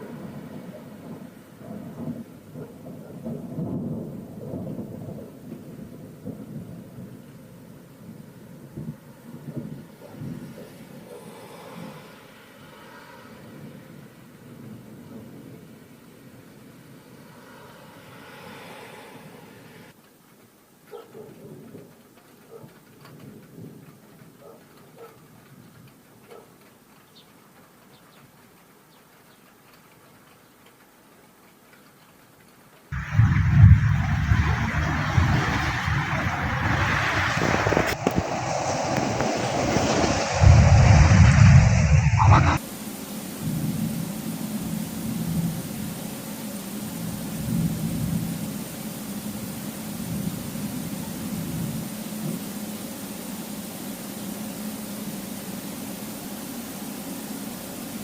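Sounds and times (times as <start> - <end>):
rolling thunder: 0.1 - 7.2, 33.0 - 42.6
raindrops tapping on hard surface: 29.4 - 38.2
faint low rumble: 33.0 - 42.6.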